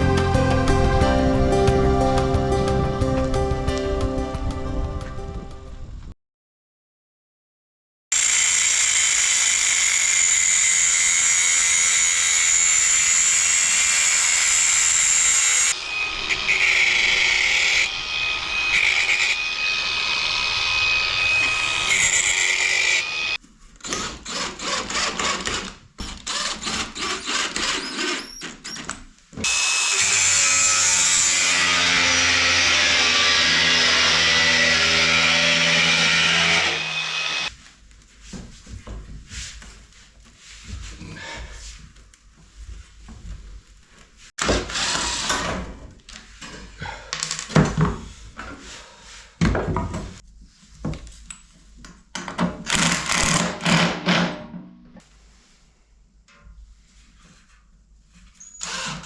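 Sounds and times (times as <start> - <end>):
power tool whining: 8.2 - 25.6, 29.4 - 37.5.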